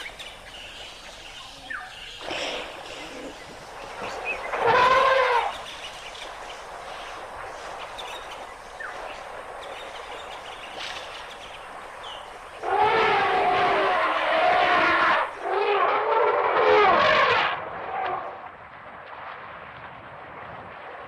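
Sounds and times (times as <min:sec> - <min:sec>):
faint bird chirps: 0:00.0 - 0:12.3
elephant trumpeting: 0:04.5 - 0:05.6, 0:12.6 - 0:18.1.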